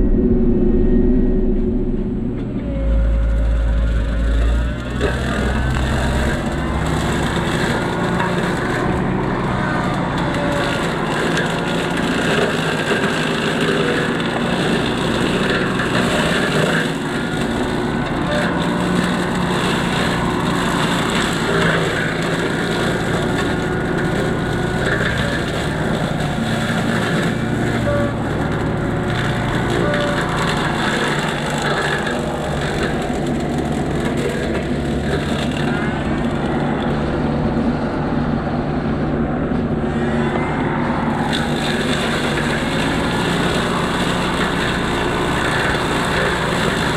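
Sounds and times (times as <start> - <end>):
excavator engine running: 0.0 - 46.9
brush cutter chopping brush: 5.0 - 35.8.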